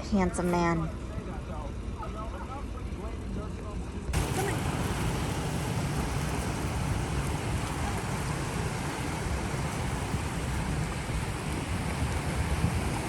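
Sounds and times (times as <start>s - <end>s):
wind buffeting microphone: 4.1s - 13.0s.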